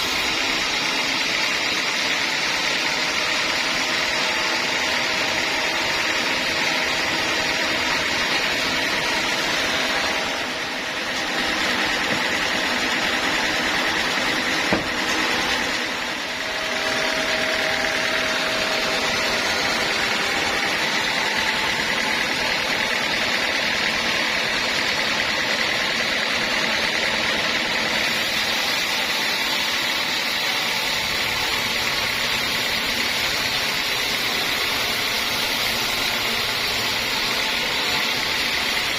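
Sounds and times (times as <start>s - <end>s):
band sawmill running: 0.0s - 38.9s.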